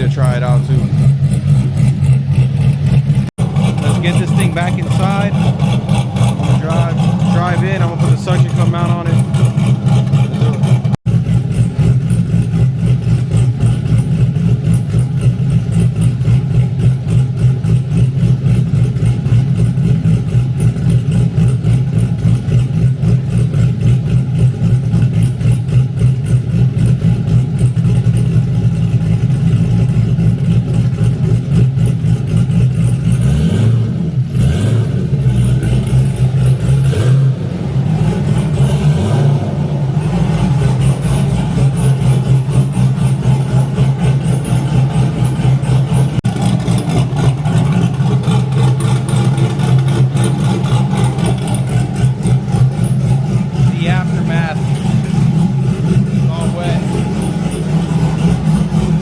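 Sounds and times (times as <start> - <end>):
engine idling choppily: 0.0 - 59.0
engine revving: 0.0 - 59.0.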